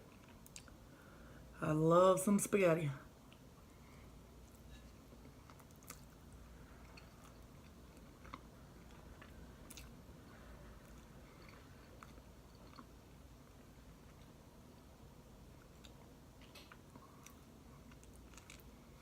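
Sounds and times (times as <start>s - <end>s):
person chewing: 0.0s - 0.8s, 4.4s - 14.4s, 15.6s - 19.0s.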